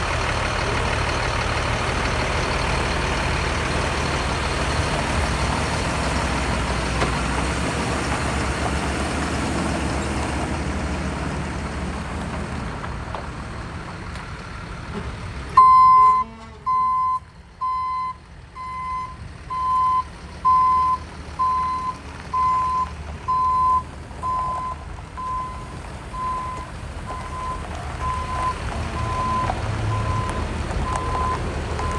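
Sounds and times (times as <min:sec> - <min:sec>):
truck engine rumbling: 0:00.0 - 0:31.9
backup alarm beeping: 0:15.6 - 0:31.9.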